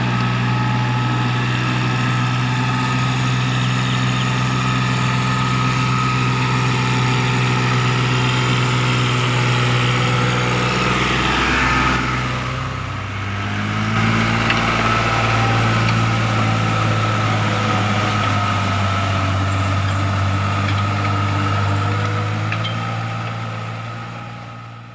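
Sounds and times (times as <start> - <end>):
tractor diesel engine running: 0.0 - 24.9.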